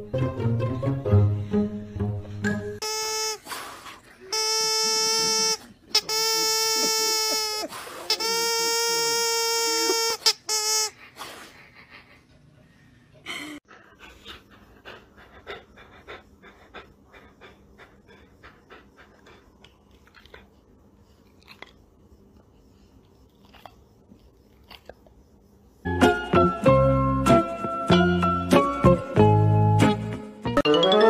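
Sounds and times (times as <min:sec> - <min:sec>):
pet panting: 0:10.9 - 0:25.9.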